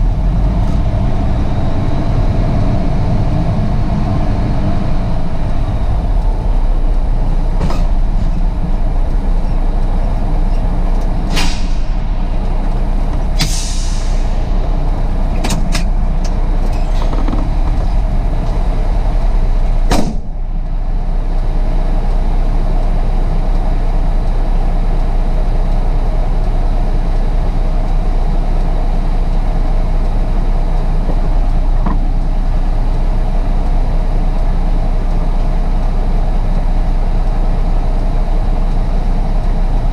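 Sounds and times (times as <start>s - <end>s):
diesel truck engine running: 0.0s - 39.9s
sharp knock: 11.2s - 12.1s, 19.9s - 20.4s
air hiss: 13.4s - 14.9s.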